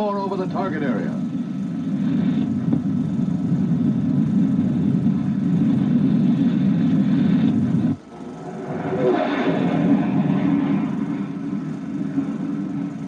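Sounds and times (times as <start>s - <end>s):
jet fighters passing over: 7.9s - 13.0s.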